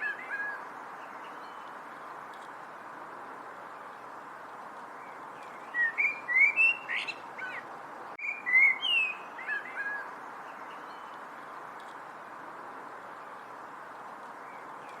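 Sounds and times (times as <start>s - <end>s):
background hiss: 0.0s - 15.0s
songbird whistling: 5.7s - 7.6s, 8.2s - 10.0s.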